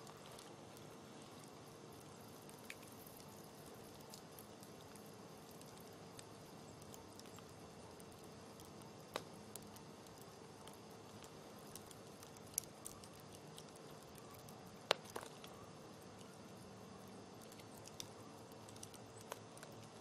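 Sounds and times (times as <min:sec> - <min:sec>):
burning wood popping: 0:00.0 - 0:20.0
campfire crackling: 0:00.0 - 0:20.0.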